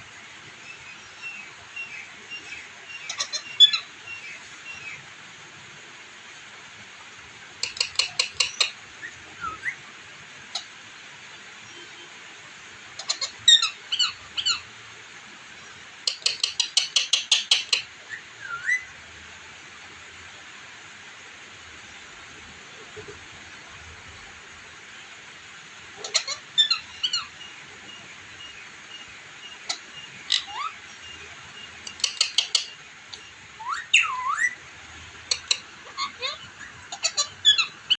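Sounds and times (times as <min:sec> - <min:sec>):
parrot chirping and whistling: 0:01.2 - 0:04.9, 0:07.6 - 0:09.8, 0:16.1 - 0:18.9, 0:26.0 - 0:27.3, 0:28.4 - 0:34.6, 0:35.3 - 0:37.9
parrot whistling: 0:18.4 - 0:18.9, 0:33.6 - 0:34.6
parrot clicking: 0:31.9 - 0:32.5.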